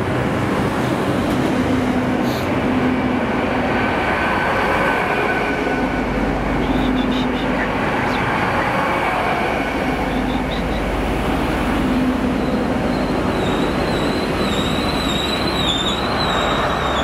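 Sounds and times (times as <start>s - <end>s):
train wheels rumbling on rails: 0.0s - 17.0s
high wavering wheel squeal: 12.4s - 17.0s.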